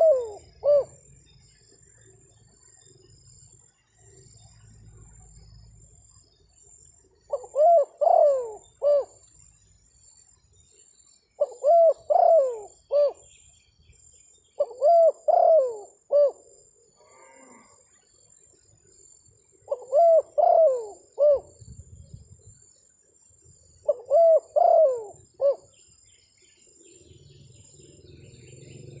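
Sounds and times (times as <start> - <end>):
dove cooing: 0.0 - 1.1, 7.3 - 9.2, 11.4 - 13.3, 14.6 - 16.5, 19.7 - 21.6, 23.8 - 25.8.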